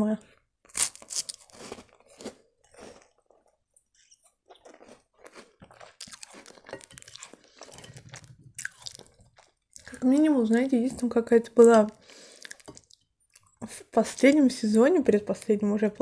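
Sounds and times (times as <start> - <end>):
biscuit crunching: 0.6 - 10.3.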